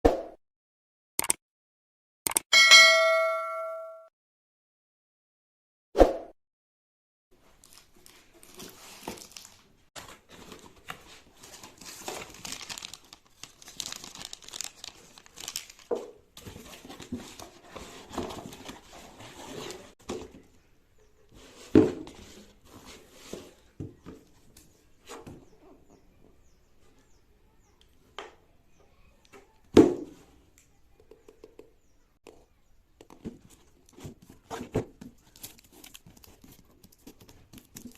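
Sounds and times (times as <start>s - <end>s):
packaging crinkling and tearing: 7.6s - 17.5s, 35.0s - 37.9s.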